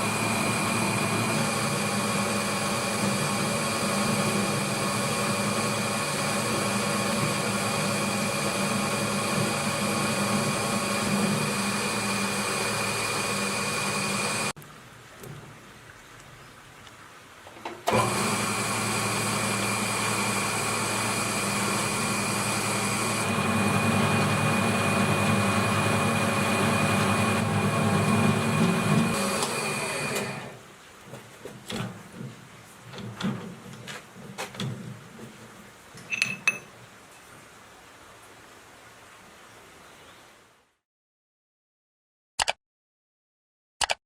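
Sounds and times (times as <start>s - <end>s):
electric motor whining: 0.0s - 14.5s, 17.9s - 30.6s.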